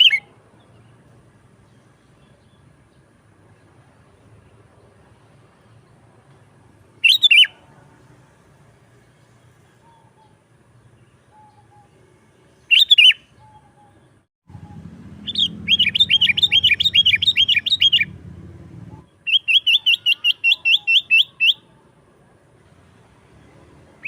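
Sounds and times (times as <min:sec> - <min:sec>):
bulbul chattering: 0:12.7 - 0:18.2, 0:19.0 - 0:21.7.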